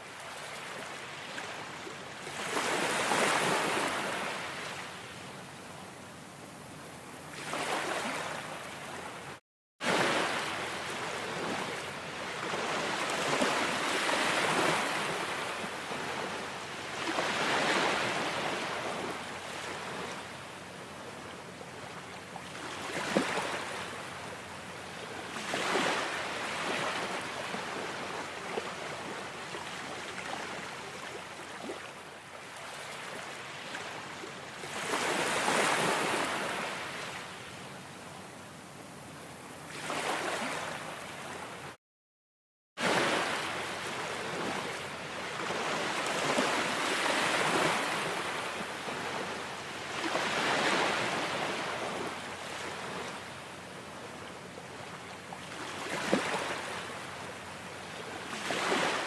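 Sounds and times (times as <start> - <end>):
ocean waves washing in: 7.3 - 20.3.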